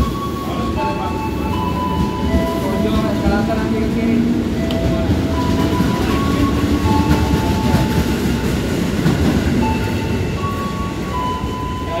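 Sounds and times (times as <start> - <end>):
electric train rumbling past: 0.0 - 12.0.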